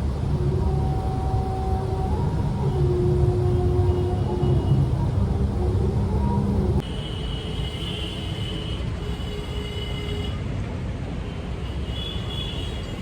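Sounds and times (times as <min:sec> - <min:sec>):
low vehicle rumble: 0:00.0 - 0:06.8.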